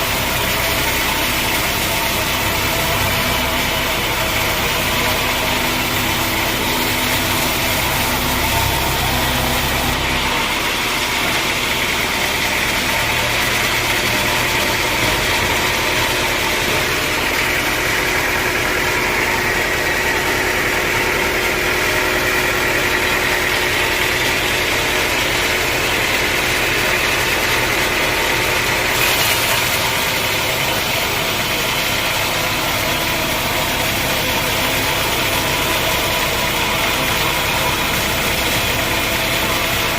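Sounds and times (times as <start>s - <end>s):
low motor hum: 0.0s - 39.9s
sawmill saw whining: 0.0s - 39.9s.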